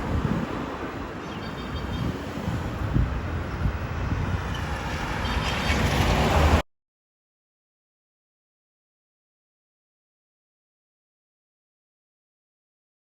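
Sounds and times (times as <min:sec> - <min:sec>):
jet airliner rumble: 0:00.0 - 0:06.6.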